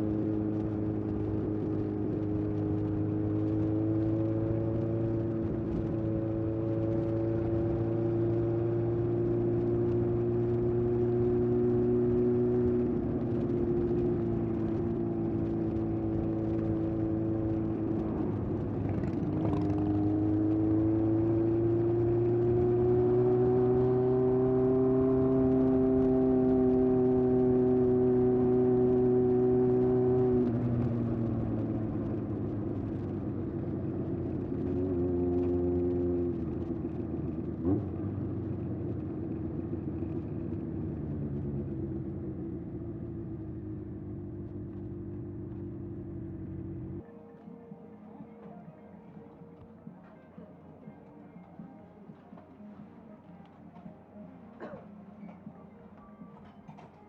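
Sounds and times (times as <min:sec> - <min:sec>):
motorcycle exhaust cruising: 0:00.0 - 0:50.0.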